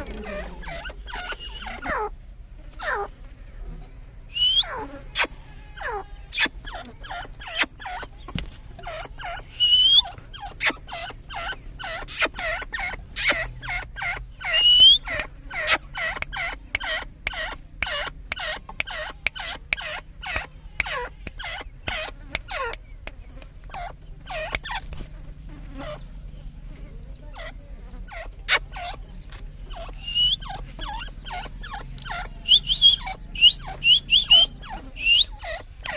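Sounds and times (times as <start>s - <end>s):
francolin calling: 0.0s - 2.1s, 4.3s - 24.9s, 27.3s - 35.9s
rising bird squeal: 4.3s - 6.8s, 8.9s - 10.8s, 14.5s - 15.1s, 29.8s - 31.1s.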